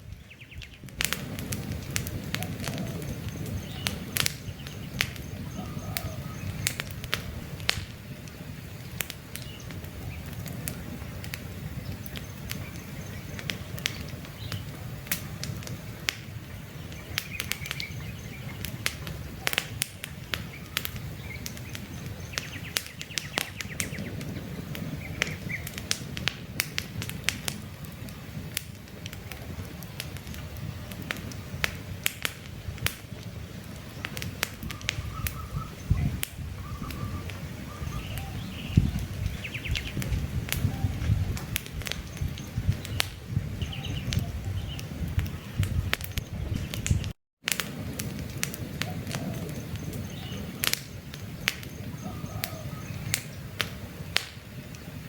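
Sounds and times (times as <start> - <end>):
campfire crackling and popping: 0.0 - 55.0
low fire rumble: 0.0 - 55.0
faint bird chirps: 2.4 - 6.8, 34.7 - 40.0, 42.0 - 47.0, 51.3 - 53.4.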